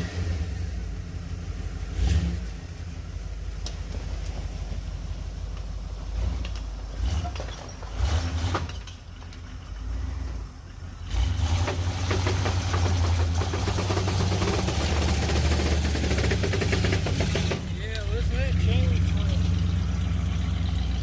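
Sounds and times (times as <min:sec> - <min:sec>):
pickup truck engine running: 0:00.0 - 0:21.0
knocks and clatters: 0:05.5 - 0:10.2, 0:11.4 - 0:18.2.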